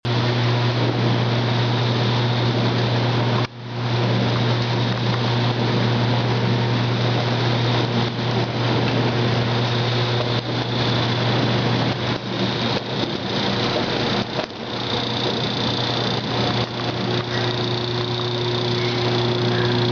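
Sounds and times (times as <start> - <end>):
electric motor hum: 0.1 - 19.9
rushing rattling noise: 7.6 - 19.9.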